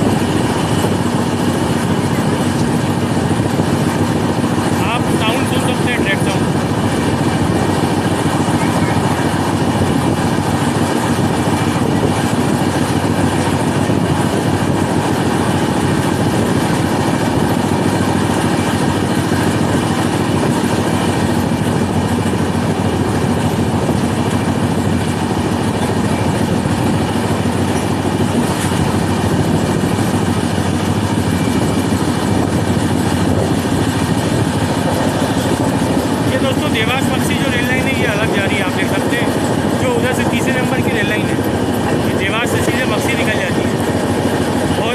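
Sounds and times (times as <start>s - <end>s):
train wheel and rail noise: 0.0s - 44.9s.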